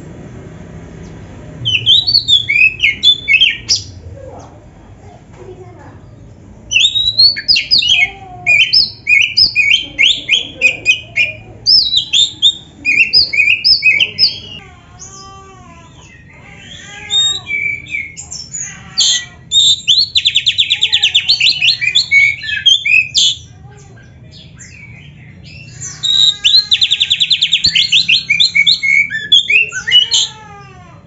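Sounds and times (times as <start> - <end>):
bird singing whistled phrases: 1.6 - 3.9, 6.7 - 14.6, 19.5 - 23.5, 24.6 - 30.0.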